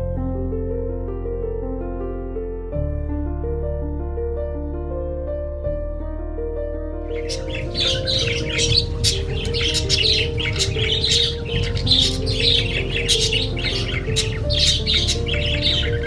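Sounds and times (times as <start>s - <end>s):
soft sustained music: 0.0s - 16.0s
small bird chirping: 7.1s - 16.0s.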